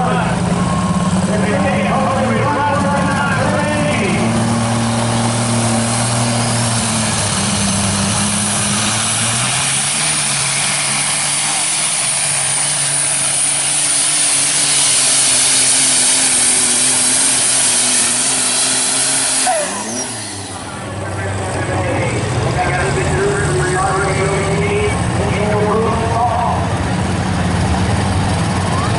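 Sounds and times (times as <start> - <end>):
diesel tractor engine under load: 0.0 - 28.9
high turbo whistle: 17.2 - 20.8.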